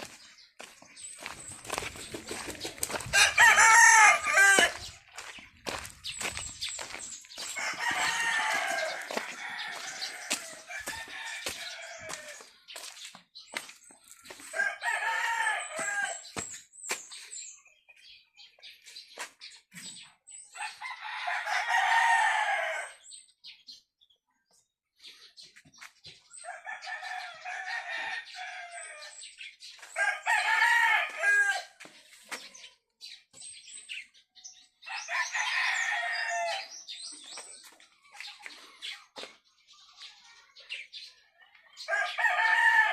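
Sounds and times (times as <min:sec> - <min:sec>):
roosters crowing: 0:02.4 - 0:05.0, 0:07.4 - 0:12.5, 0:14.3 - 0:16.4, 0:20.6 - 0:23.1, 0:26.4 - 0:31.8, 0:34.8 - 0:37.0, 0:41.8 - 0:42.9.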